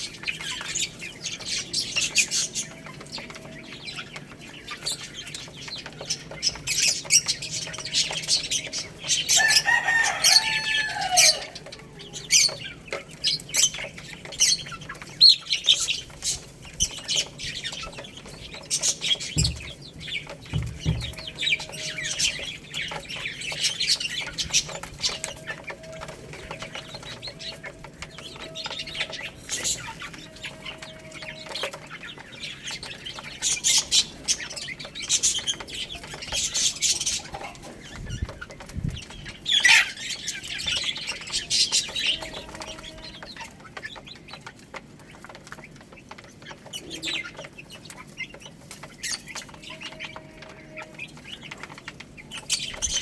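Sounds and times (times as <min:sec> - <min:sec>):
baby chicks peeping: 0:00.0 - 0:53.0.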